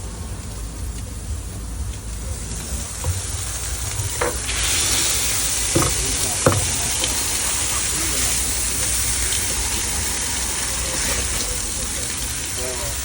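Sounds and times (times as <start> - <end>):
food sizzling on a griddle: 2.4 - 13.0
sharp knocks: 5.8 - 6.8.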